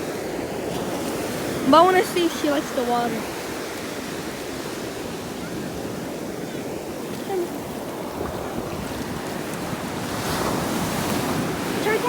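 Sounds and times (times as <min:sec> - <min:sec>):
ocean surf washing: 0:00.0 - 0:12.0
wind buffeting microphone: 0:00.0 - 0:12.0.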